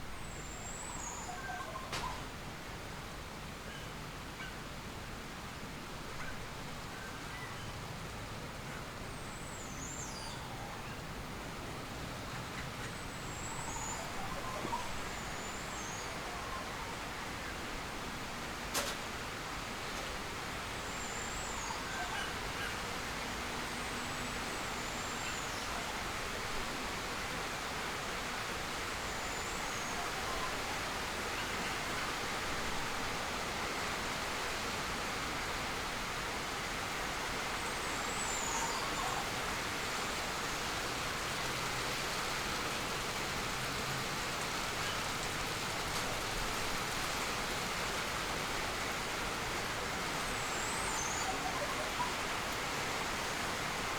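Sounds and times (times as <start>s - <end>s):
outdoor ambience hiss: 0.0s - 53.9s.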